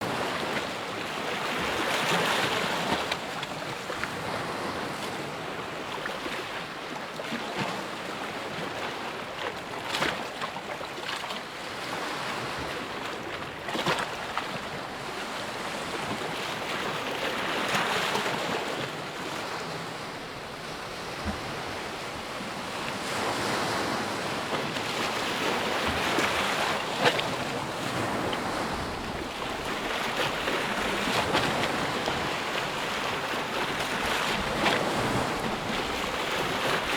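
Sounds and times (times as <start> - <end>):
sea waves breaking: 11.8 - 36.9.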